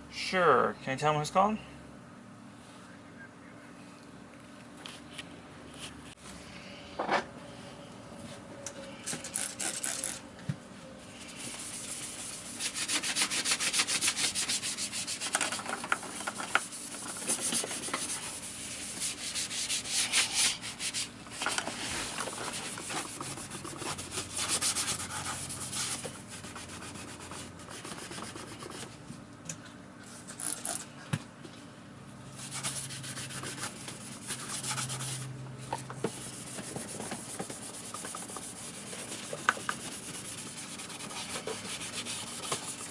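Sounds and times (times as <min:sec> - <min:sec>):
hand scrubbing rubbing strokes: 0:11.1 - 0:15.4, 0:16.1 - 0:28.5, 0:36.1 - 0:42.9.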